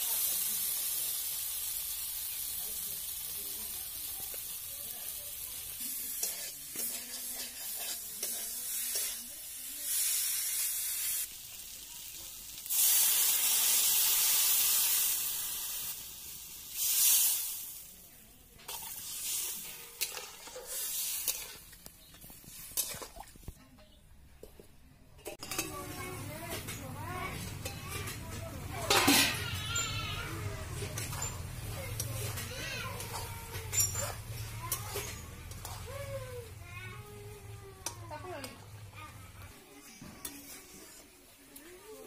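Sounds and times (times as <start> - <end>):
water hissing in a hot pan: 0.0 - 21.7
food sizzling in a pan: 0.0 - 23.0, 25.3 - 42.0
spatula scraping a pan: 5.8 - 11.2, 18.7 - 23.0, 25.3 - 36.3, 39.8 - 41.3.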